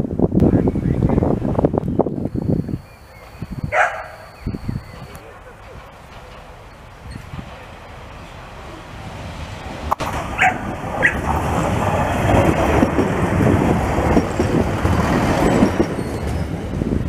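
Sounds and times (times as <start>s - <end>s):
train passing with wheel rumble: 0.0s - 17.0s
dog barking: 3.7s - 4.3s, 10.4s - 11.2s.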